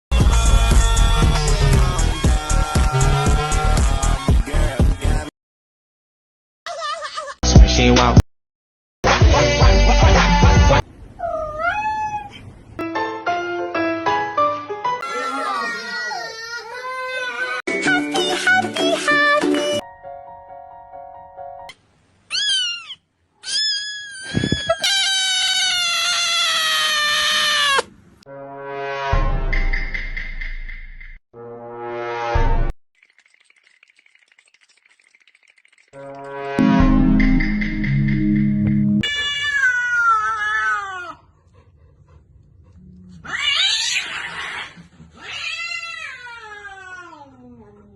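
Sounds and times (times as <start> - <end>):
cat yowling harshly: 11.2 - 12.4, 22.3 - 27.9, 39.0 - 41.2, 43.2 - 47.4
cat meowing: 22.3 - 27.9, 39.0 - 41.2, 43.2 - 47.4.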